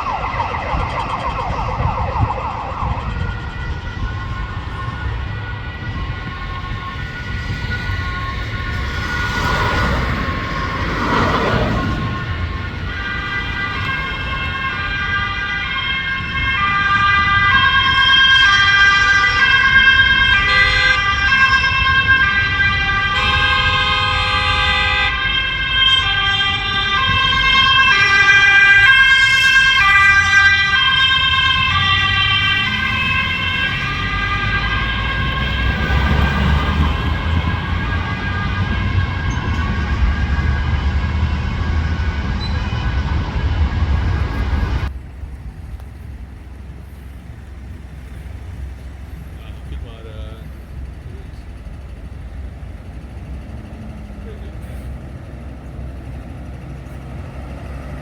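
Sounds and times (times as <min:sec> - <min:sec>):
two-tone siren: 0:00.0 - 0:44.9
low vehicle rumble: 0:00.0 - 0:58.0.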